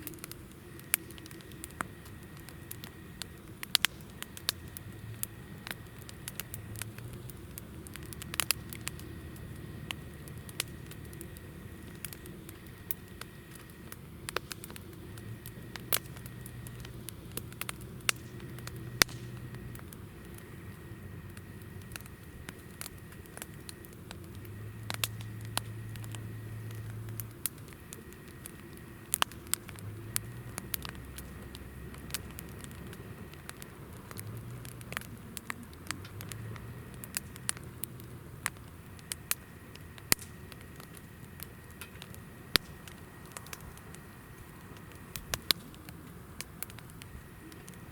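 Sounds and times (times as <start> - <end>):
campfire crackling and popping: 0.0 - 47.9
fire hiss: 0.0 - 47.9.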